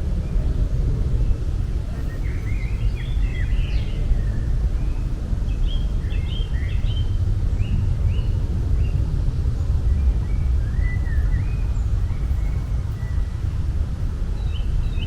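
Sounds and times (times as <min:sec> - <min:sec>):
low outdoor rumble: 0:00.0 - 0:15.0
small birds chirping: 0:01.9 - 0:13.5.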